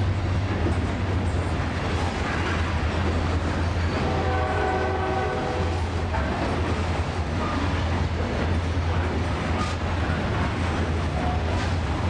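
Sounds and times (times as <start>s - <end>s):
freight train rumbling past: 0.0s - 12.0s
train horn: 3.9s - 6.1s.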